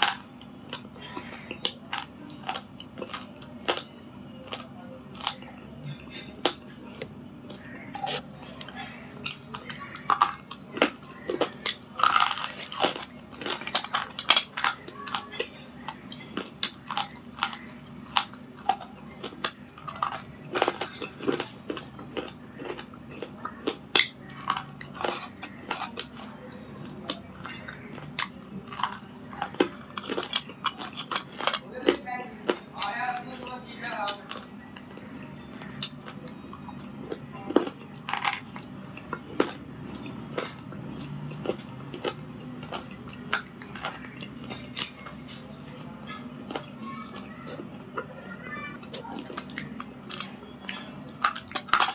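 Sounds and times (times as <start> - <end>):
crunchy chewing: 0.0 - 51.9.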